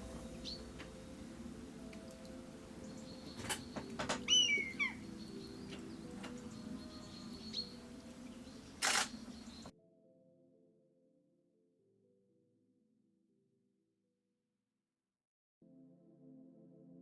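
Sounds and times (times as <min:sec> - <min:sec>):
faint music: 0:00.0 - 0:09.9
camera shutter clicks: 0:08.8 - 0:09.2.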